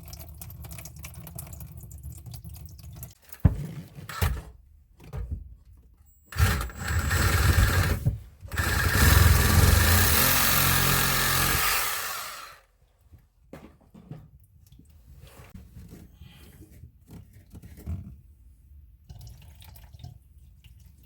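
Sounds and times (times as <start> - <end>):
electric power tool running: 6.3 - 12.7.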